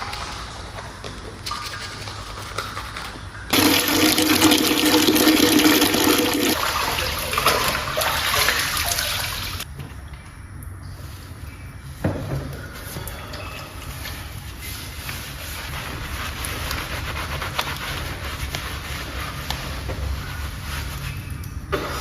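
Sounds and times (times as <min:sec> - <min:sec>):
toilet flushing: 0:03.5 - 0:09.7.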